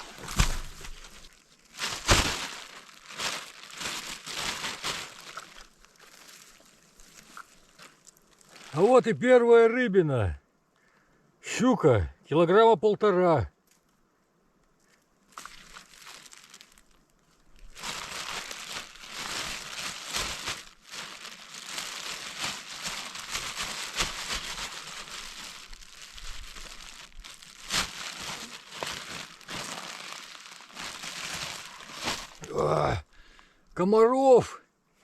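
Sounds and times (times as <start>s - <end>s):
dense rustling and crinkling: 0.0s - 9.0s, 14.8s - 33.0s.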